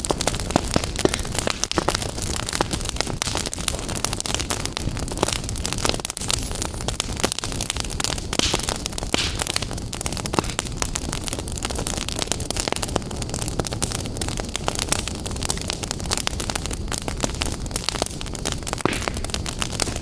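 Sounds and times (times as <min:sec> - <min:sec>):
wood fire crackling and popping: 0:00.0 - 0:20.0
fire rushing hiss: 0:07.9 - 0:11.0.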